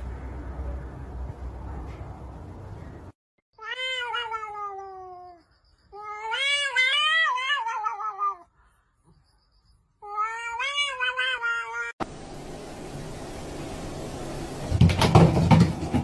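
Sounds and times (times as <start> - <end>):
cat meowing: 3.6 - 5.4, 6.0 - 8.5, 10.0 - 12.0.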